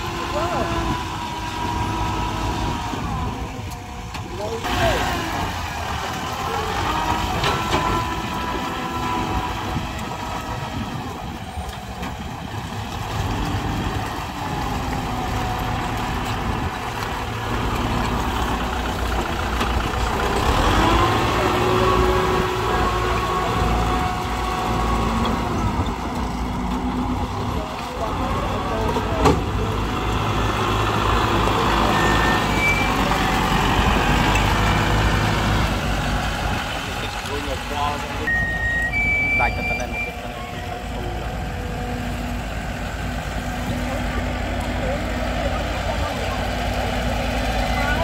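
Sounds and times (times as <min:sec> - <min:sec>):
heavy diesel engine running: 0:00.0 - 0:48.0.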